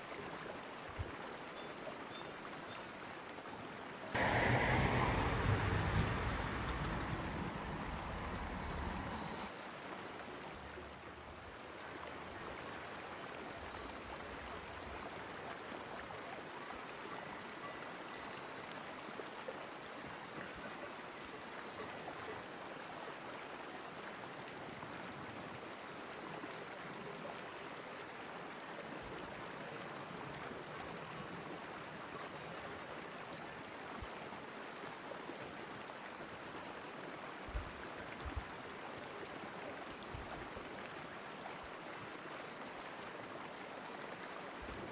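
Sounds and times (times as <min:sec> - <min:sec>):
stream flowing: 0:00.0 - 0:44.9
low bumps: 0:04.2 - 0:09.5.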